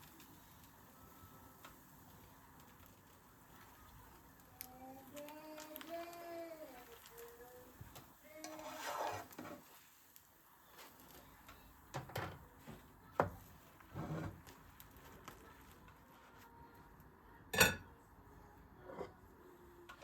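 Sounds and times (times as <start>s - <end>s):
dishes and utensils clinking: 17.5s - 18.0s.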